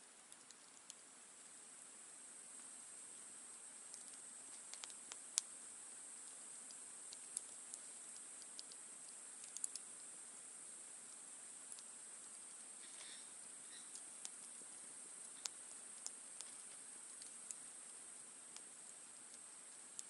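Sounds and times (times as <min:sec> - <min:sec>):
steady high hiss: 0:00.0 - 0:20.0
campfire crackling: 0:00.1 - 0:20.0
campfire pops: 0:03.9 - 0:05.5.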